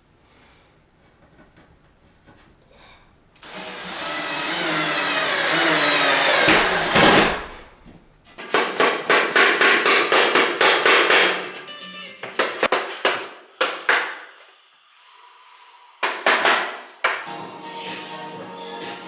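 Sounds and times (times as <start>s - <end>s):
small electric motor running: 3.4s - 7.0s.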